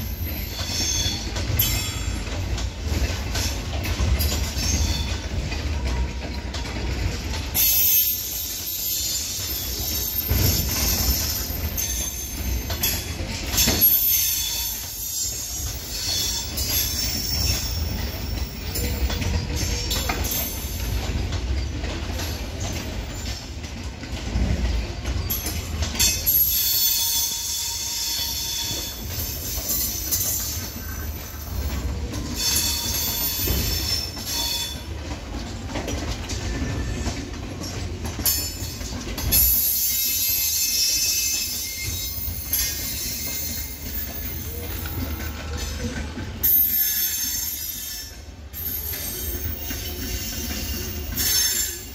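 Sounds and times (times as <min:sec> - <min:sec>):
train wheels rumbling and clattering: 0:00.0 - 0:51.9
high wheel squeal: 0:32.3 - 0:34.8, 0:39.3 - 0:45.7, 0:46.4 - 0:51.9.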